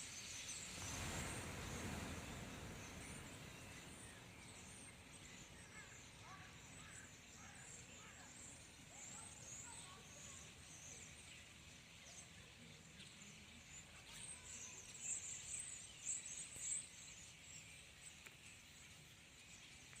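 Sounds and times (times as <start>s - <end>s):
faint outdoor noise: 0.0s - 20.0s
small birds chirping: 0.0s - 20.0s.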